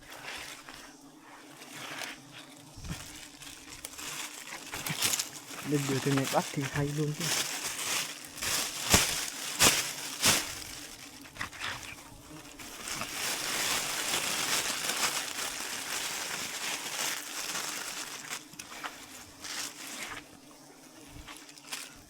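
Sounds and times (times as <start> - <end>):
bees buzzing: 0.0 - 22.0
rustling and crinkling material: 0.0 - 22.0.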